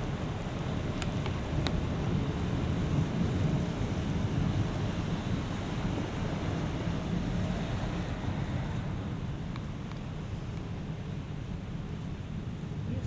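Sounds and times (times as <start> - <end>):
thunderstorm rumbling: 0.0 - 10.3.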